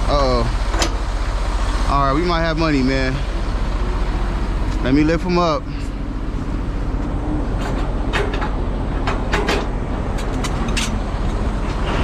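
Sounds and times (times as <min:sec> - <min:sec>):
diesel truck engine idling: 0:00.0 - 0:12.0
metallic clicks and clanks: 0:07.6 - 0:12.0.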